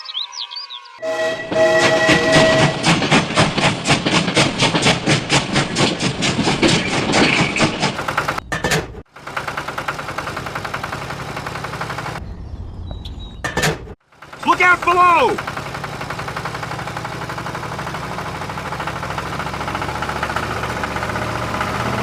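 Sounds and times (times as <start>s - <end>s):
engine clattering: 1.5s - 12.2s, 13.5s - 22.0s
smooth quiet engine: 14.2s - 22.0s.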